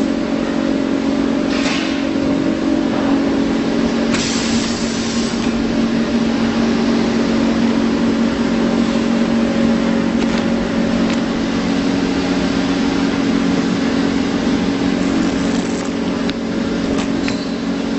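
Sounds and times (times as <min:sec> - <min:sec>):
welding machine humming: 0:00.0 - 0:17.9
hiss: 0:04.1 - 0:05.4.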